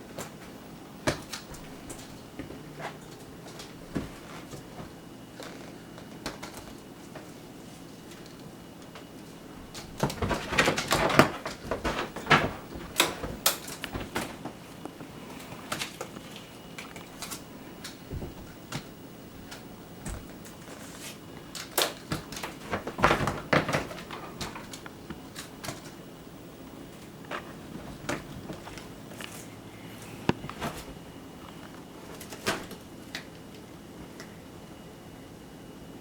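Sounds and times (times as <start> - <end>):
cat paws scuffling and thumping: 0.2 - 5.0, 9.6 - 21.2, 22.0 - 26.0, 26.7 - 29.6, 30.2 - 32.8.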